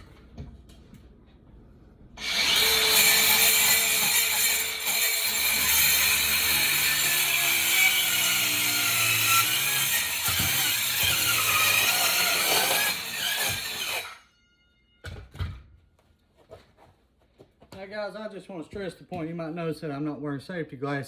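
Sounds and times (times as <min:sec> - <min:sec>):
power saw cutting wood: 0:02.2 - 0:14.2.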